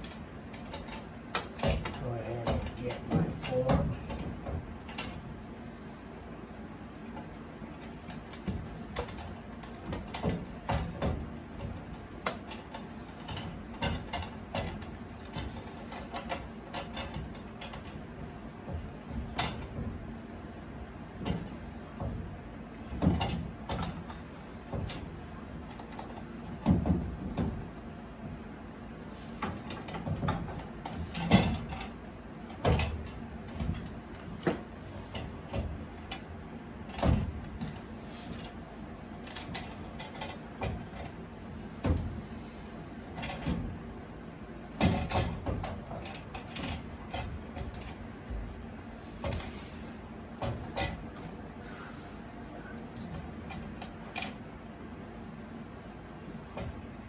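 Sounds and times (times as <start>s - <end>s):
metal supply line clicking and creaking: 0.0s - 5.2s, 8.0s - 20.4s, 29.2s - 36.3s, 36.9s - 43.7s, 44.7s - 54.5s.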